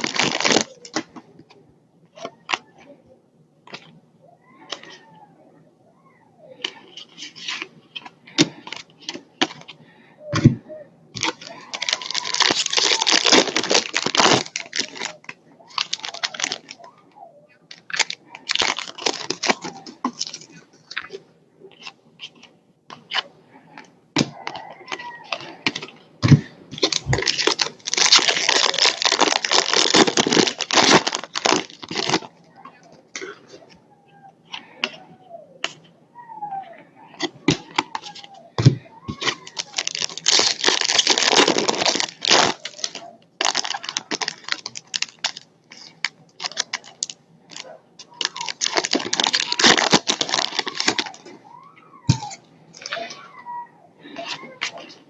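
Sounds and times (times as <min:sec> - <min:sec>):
wrappers crinkling and ripping: 0:00.0 - 0:01.1, 0:11.2 - 0:17.0, 0:17.7 - 0:21.2, 0:26.7 - 0:33.3, 0:37.2 - 0:51.4.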